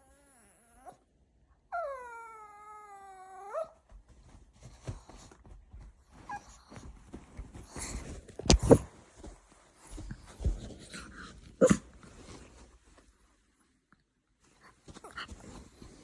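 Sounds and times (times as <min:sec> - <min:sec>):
soft rustling and tapping: 0:03.8 - 0:13.4, 0:14.4 - 0:16.0.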